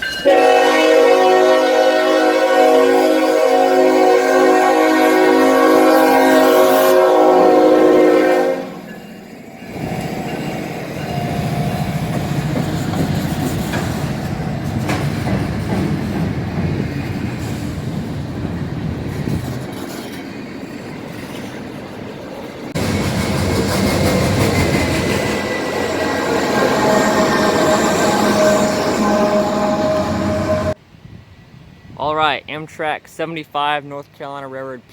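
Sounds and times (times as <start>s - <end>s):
locomotive horn: 0.2s - 8.9s, 25.0s - 30.8s.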